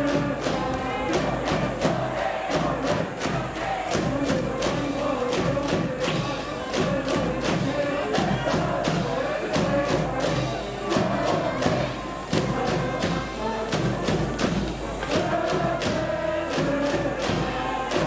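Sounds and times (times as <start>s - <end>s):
crowd chanting: 0.0s - 18.0s
drum beat: 0.0s - 18.0s
brass band playing: 4.9s - 18.0s.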